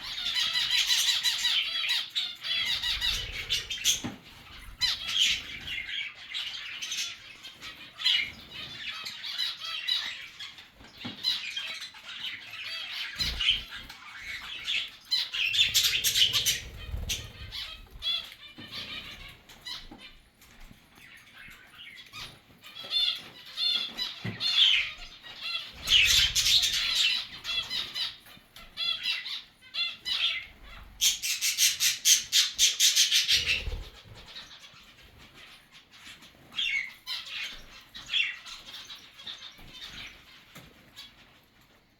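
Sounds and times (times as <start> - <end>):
birds chirping and chattering: 0.0 - 41.9
wing flapping: 15.4 - 19.4, 25.8 - 27.7, 33.1 - 34.5.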